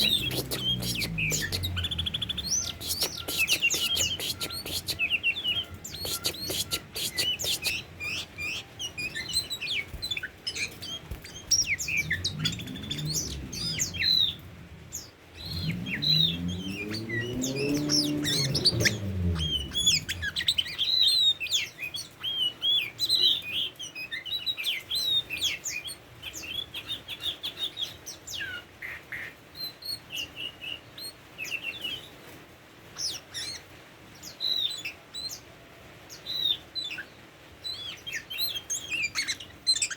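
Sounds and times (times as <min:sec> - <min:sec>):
low drone rising and falling: 0:00.0 - 0:05.0, 0:11.2 - 0:20.6
bird chirping: 0:00.0 - 0:29.0, 0:36.1 - 0:39.9.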